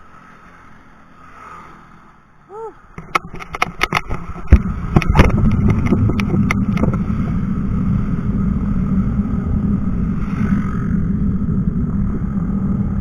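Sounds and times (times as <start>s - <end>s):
wind rumbling on microphone: 2.5s - 13.0s
bicycle rattling over road: 2.9s - 12.5s.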